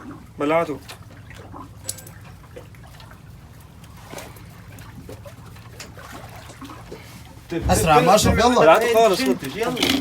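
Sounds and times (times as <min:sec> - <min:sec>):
boat engine humming: 0:06.8 - 0:10.0
distant voices: 0:07.5 - 0:10.0
faint knocks: 0:07.6 - 0:08.7.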